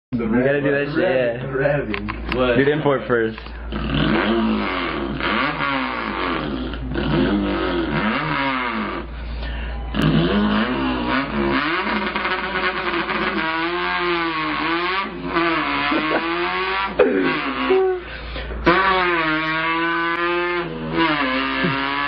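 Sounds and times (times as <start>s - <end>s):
man imitating engine revving: 3.7s - 9.2s, 9.9s - 22.0s.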